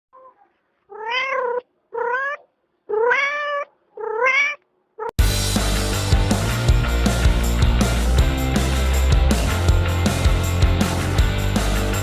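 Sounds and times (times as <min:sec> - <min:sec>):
cat meowing: 0:00.2 - 0:05.1
loud music: 0:05.2 - 0:12.0.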